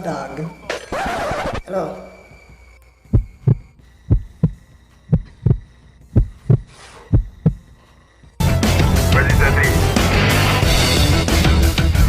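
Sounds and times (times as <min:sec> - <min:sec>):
heartbeat double thumps: 0:03.1 - 0:07.7.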